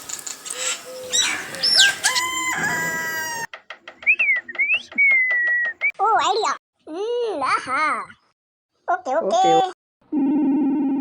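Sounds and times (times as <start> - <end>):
rooster crowing: 0.6 - 3.6
sliding whistle-like tone: 0.6 - 5.9.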